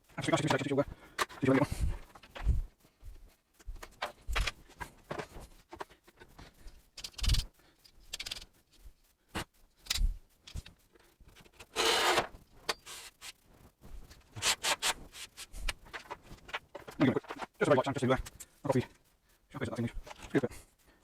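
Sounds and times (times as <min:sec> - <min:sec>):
hand tool scraping wood: 0:14.4 - 0:15.6.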